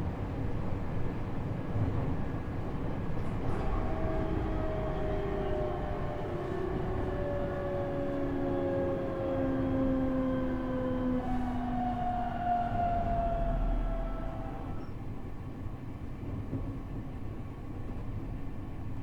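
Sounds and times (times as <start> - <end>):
wheel and rail rumble: 0.0 - 17.1
electric train motors whining: 2.7 - 15.1.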